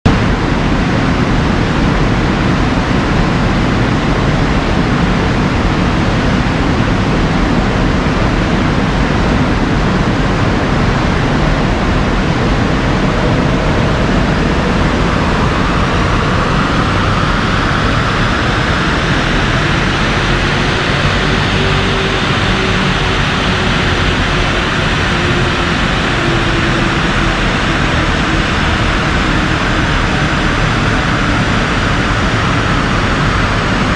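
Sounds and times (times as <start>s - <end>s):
diesel car engine under load: 0.0s - 33.9s
loud rush of air: 0.1s - 33.9s
rising whine: 0.1s - 33.9s.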